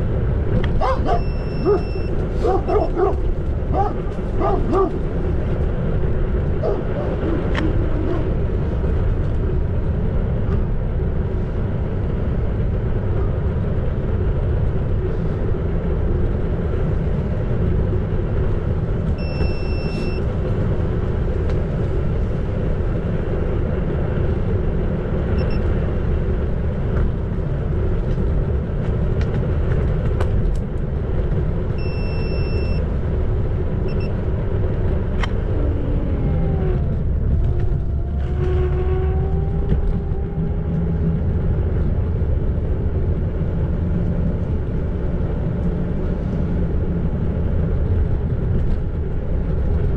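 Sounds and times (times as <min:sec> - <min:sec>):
electric scooter rumbling: 0:00.0 - 0:49.9
high steady beep: 0:01.2 - 0:02.2, 0:19.2 - 0:20.2, 0:31.8 - 0:32.8, 0:33.9 - 0:34.2.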